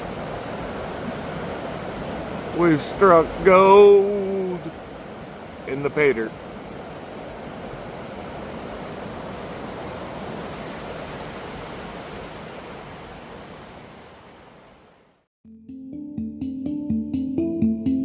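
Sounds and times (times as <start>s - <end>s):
waterfall rushing water: 0.0s - 15.2s
music: 15.4s - 18.0s.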